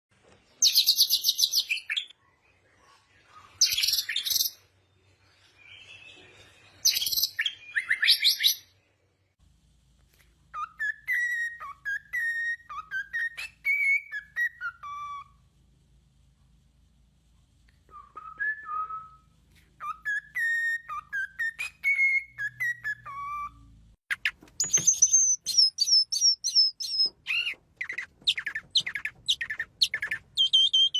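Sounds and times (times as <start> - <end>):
bird whistling sliding notes: 19.8 - 30.9
high chirping bird trills: 19.8 - 30.9.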